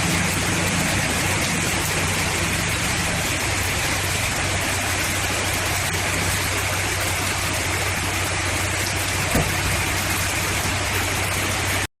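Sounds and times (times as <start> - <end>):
heavy rain falling: 0.0 - 11.9
low thump: 9.2 - 9.9.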